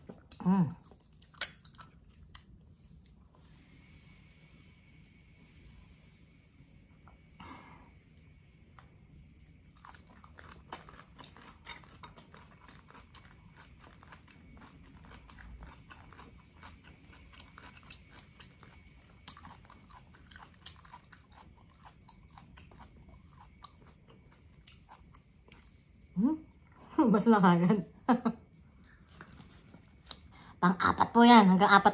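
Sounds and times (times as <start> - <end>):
person chewing food: 0.0 - 5.5, 8.1 - 26.8.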